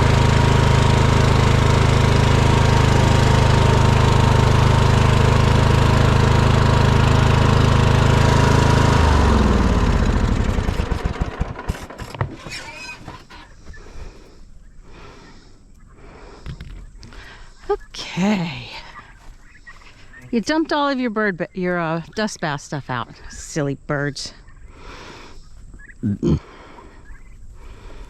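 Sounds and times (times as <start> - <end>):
small engine running: 0.0 - 15.4.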